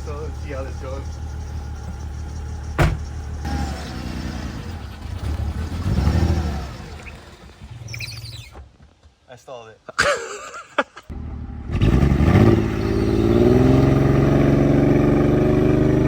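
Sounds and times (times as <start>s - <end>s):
car engine running: 0.0s - 8.0s
sharp clunk: 2.8s - 3.2s.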